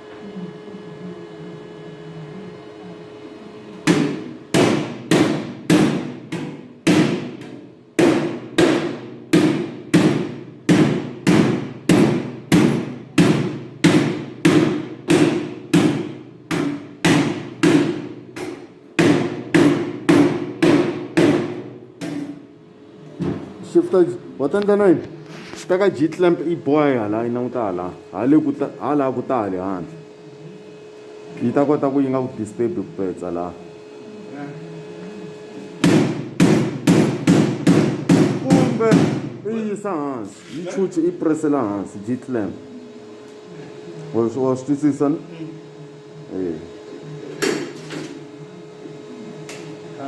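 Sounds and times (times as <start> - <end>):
hammer striking metal: 3.9 - 22.4.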